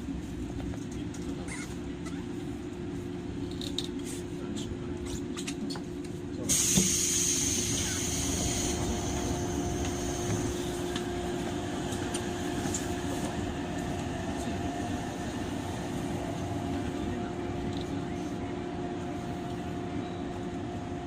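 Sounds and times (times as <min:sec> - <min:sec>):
constant rumble: 0:00.0 - 0:06.5, 0:07.8 - 0:21.0
train hum: 0:00.0 - 0:21.0
high hiss of air: 0:06.5 - 0:10.8.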